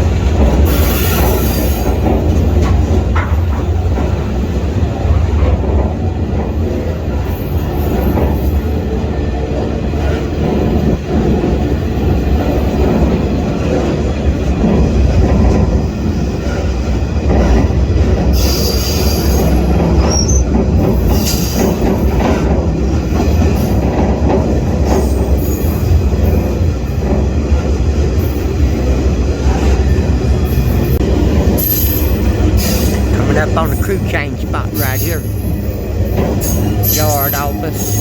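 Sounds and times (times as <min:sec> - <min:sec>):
train wheels rumbling on rail: 0:00.0 - 0:34.1, 0:34.7 - 0:38.0.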